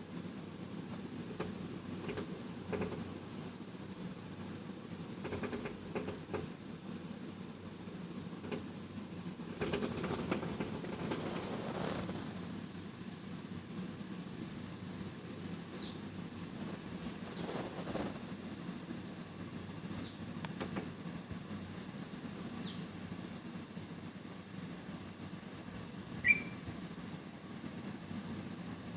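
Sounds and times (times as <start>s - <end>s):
bird chirps: 15.7s - 16.0s, 16.6s - 17.5s, 21.5s - 22.9s, 25.5s - 26.6s.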